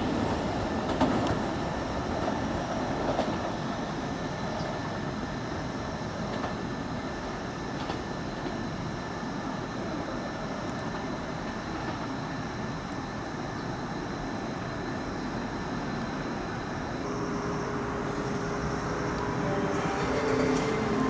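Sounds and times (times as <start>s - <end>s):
electric train rumbling: 0.0s - 21.0s
steady tones: 17.0s - 21.0s.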